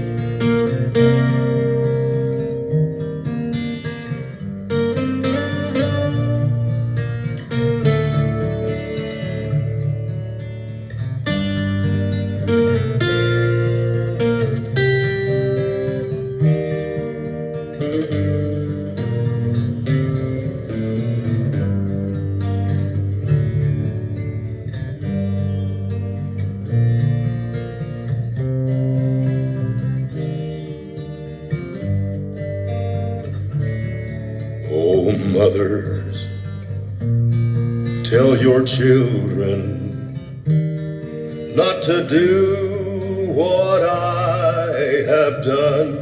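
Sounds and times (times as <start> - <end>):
plucked and strummed guitar: 0.0 - 46.0
bass line: 18.3 - 46.0.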